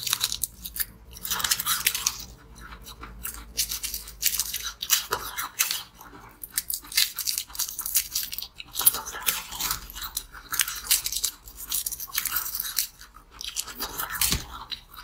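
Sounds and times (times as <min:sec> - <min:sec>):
crunchy biting and chewing: 0:00.0 - 0:15.0.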